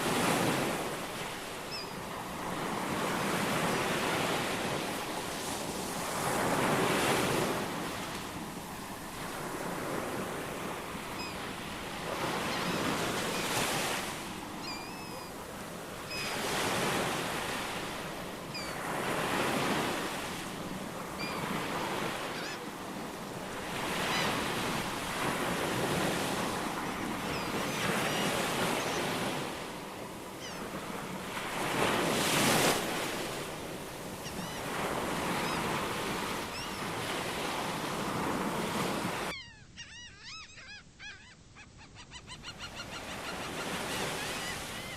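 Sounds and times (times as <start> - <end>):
ocean waves breaking: 0.0 - 39.3
faint bird chirps: 1.7 - 2.0, 14.6 - 15.4, 39.3 - 44.9.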